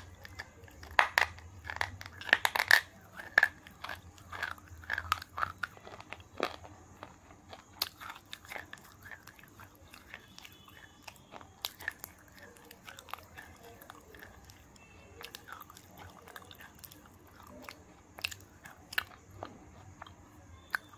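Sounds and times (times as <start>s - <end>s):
crackling bites and snaps: 0.0s - 20.9s
crunching and chewing: 0.0s - 20.9s.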